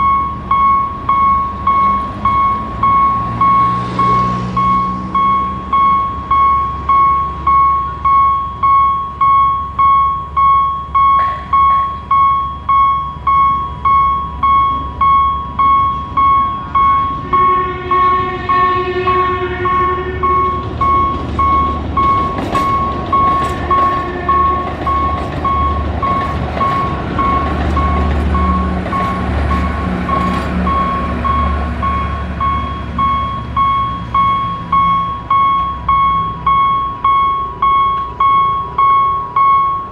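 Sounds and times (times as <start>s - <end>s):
train rumbling across: 0.0s - 39.9s
level crossing bell ringing: 5.2s - 39.9s
train horn: 17.2s - 20.8s, 23.5s - 25.0s.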